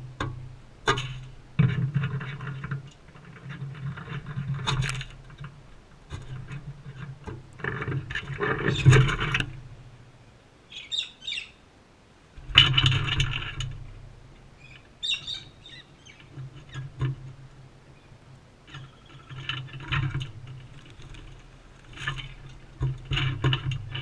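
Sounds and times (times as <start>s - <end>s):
birds scratching and pecking: 0.0s - 9.7s, 12.4s - 24.0s
bird chirps: 10.7s - 11.6s, 14.6s - 16.3s.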